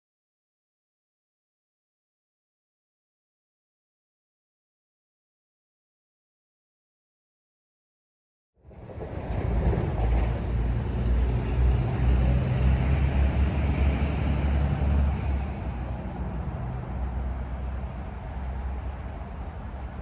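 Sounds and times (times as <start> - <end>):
train rumbling past: 8.6 - 20.0.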